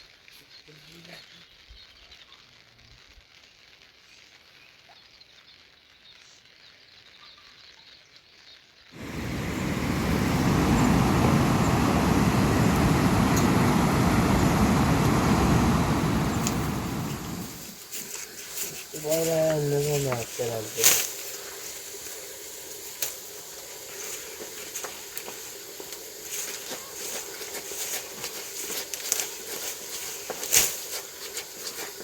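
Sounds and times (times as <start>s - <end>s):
loud steady rushing noise: 9.0s - 17.7s.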